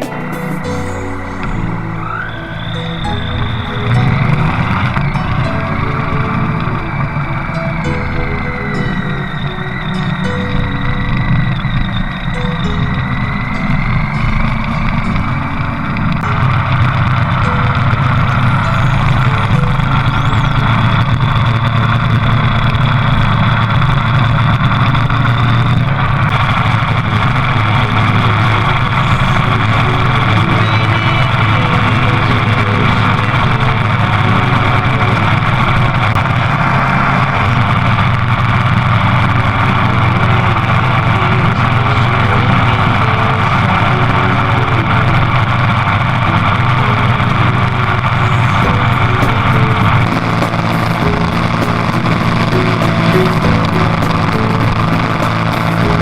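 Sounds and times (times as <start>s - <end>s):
motorcycle engine running: 3.0s - 56.0s.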